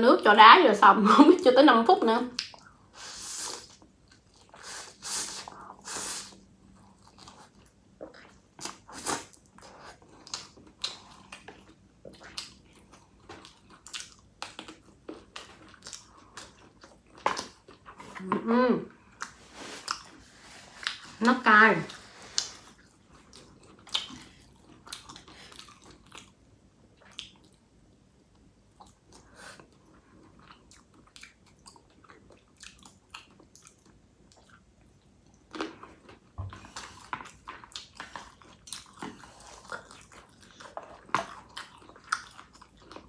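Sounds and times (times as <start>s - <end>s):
chewing and wet mouth smacks: 2.4s - 2.8s, 6.8s - 18.1s, 22.2s - 43.0s.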